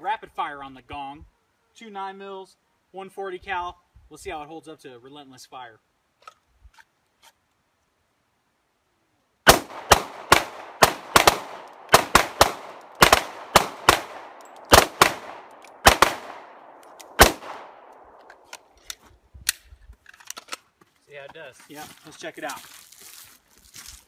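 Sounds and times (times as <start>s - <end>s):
handgun shots echoing: 9.5s - 18.4s.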